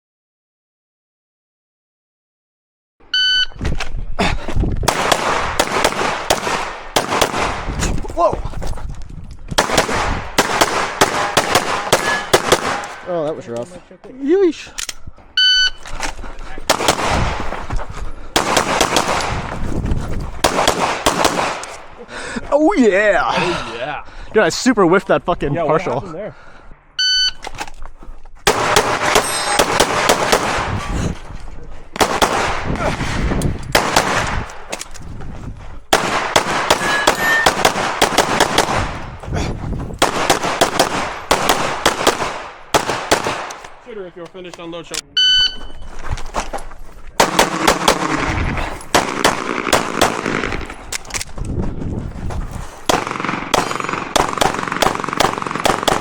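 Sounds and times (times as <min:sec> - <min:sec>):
shot timer beep: 0:03.2 - 0:03.6, 0:15.4 - 0:15.8, 0:27.0 - 0:27.4, 0:45.2 - 0:45.9
pistol shots: 0:04.9 - 0:07.8, 0:09.6 - 0:13.1, 0:16.7 - 0:17.6, 0:18.4 - 0:19.6, 0:20.4 - 0:22.0, 0:28.5 - 0:30.9, 0:32.0 - 0:34.7, 0:35.9 - 0:39.0, 0:40.0 - 0:43.8, 0:47.2 - 0:51.0, 0:52.9 - 0:56.0.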